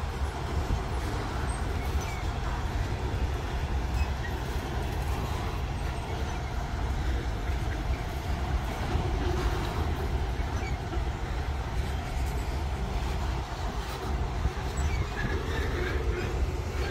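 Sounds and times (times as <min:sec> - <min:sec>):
train rumbling: 0:00.0 - 0:16.9.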